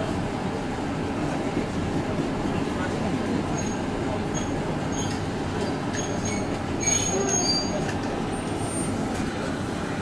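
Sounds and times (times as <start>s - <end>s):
train rumbling: 0.0s - 10.0s
wheels squealing: 5.9s - 9.0s.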